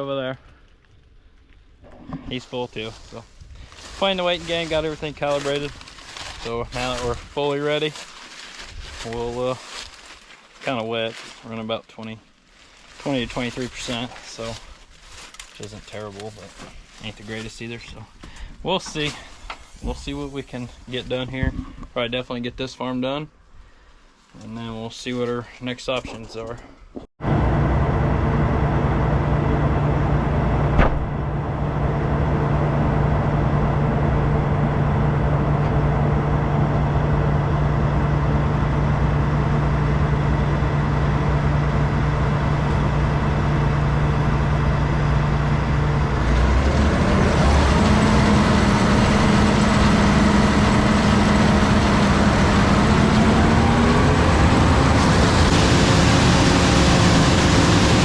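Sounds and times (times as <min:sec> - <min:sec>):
combine harvester engine drone: 0:03.7 - 0:07.9, 0:27.2 - 0:58.0.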